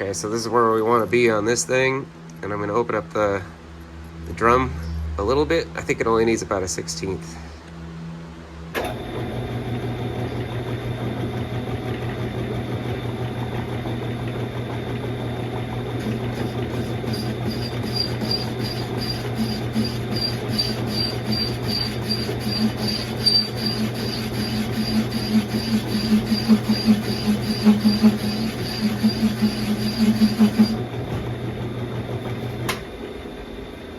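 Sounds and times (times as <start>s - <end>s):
metal lathe humming: 13.9s - 31.0s
cutting tool scraping metal: 16.0s - 30.8s.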